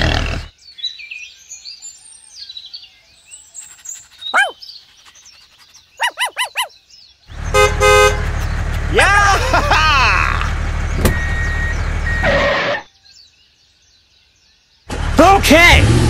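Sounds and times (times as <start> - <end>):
birds chirping: 0.0 - 15.0
rising-and-falling bird calls: 0.4 - 7.6
bird call sweeping down: 3.6 - 6.7.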